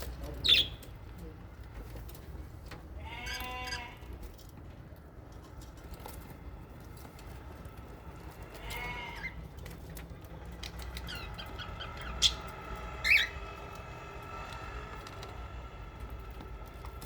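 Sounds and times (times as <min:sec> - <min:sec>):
parrots chirping and chattering: 0:00.0 - 0:01.1, 0:08.3 - 0:17.0
loud parrot calls: 0:11.1 - 0:13.4.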